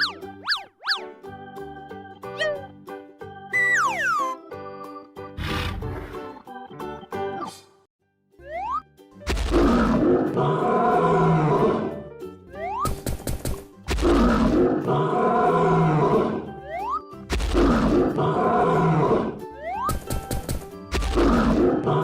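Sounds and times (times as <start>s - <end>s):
music: 0.0s - 22.0s
cartoon animal roar: 9.5s - 12.0s, 14.0s - 16.5s, 17.5s - 19.5s, 21.1s - 22.0s.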